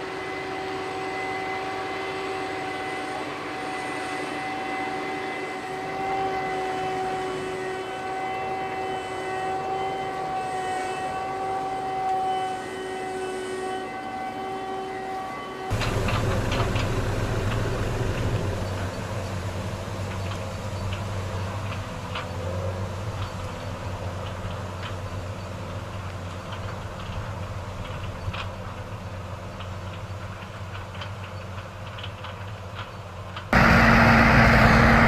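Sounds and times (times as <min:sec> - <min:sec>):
clattering: 0:15.7 - 0:19.1
deep engine rumble: 0:15.7 - 0:23.9, 0:33.6 - 0:35.0
farm machinery whining: 0:15.7 - 0:31.1, 0:33.3 - 0:35.0.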